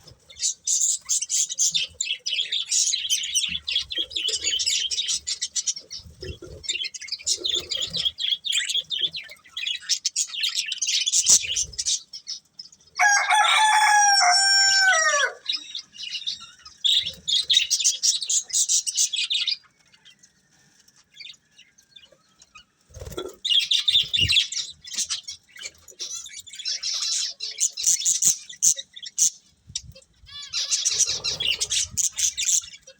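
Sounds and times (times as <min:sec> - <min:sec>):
budgerigars chirping: 0:00.0 - 0:12.1, 0:30.3 - 0:32.9.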